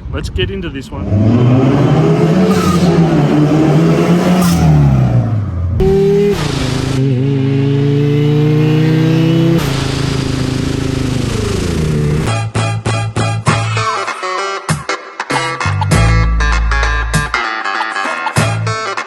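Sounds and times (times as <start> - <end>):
supercharged car engine revving: 0.9 - 12.3.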